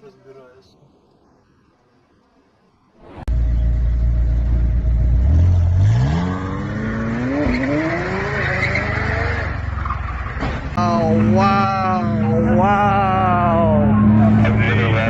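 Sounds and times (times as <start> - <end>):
car engine accelerating: 3.3 - 10.0.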